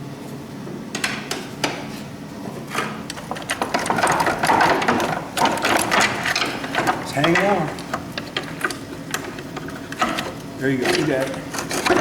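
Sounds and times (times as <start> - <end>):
power tool rattling hammering: 3.1 - 12.0.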